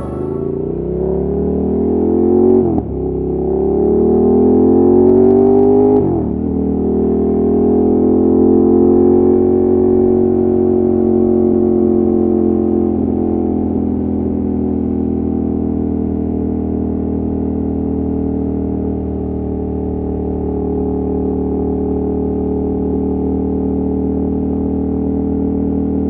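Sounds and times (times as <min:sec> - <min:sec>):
motorcycle engine accelerating: 0:00.0 - 0:10.6.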